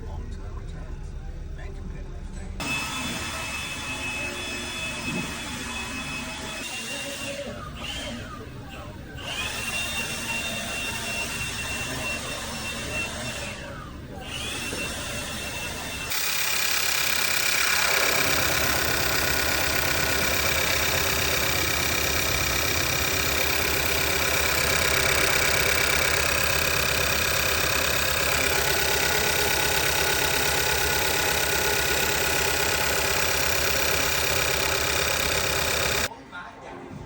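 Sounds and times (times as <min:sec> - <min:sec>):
car engine idling: 0:16.1 - 0:36.1.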